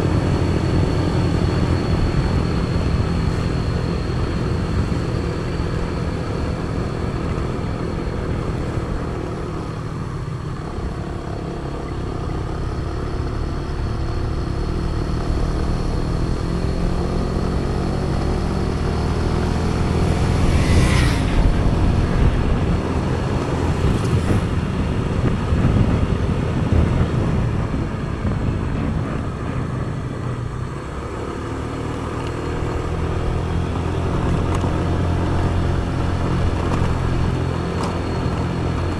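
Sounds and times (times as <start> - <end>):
road and wind noise: 0.0 - 38.9
vehicle engine cruising: 0.0 - 38.9
brief swish: 19.8 - 23.1.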